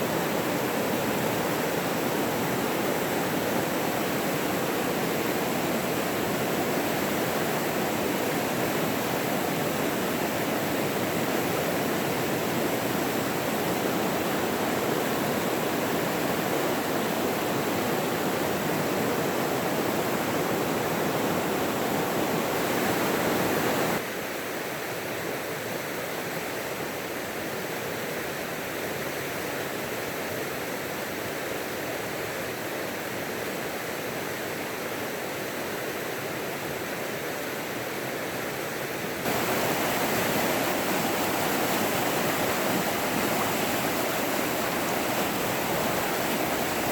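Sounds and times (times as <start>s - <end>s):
running water rushing: 0.0s - 24.0s, 37.8s - 46.9s.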